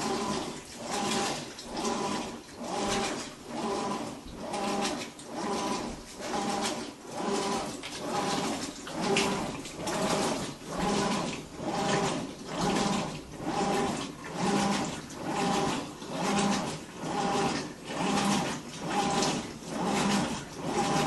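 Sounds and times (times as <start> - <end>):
washing machine humming whine: 0.0 - 21.0.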